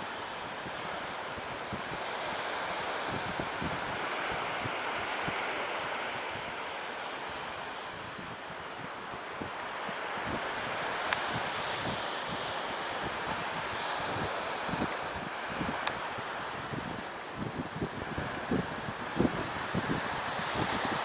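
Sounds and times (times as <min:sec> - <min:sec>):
surf washing on a beach: 0:00.0 - 0:21.0
wind buffeting microphone: 0:13.0 - 0:21.0.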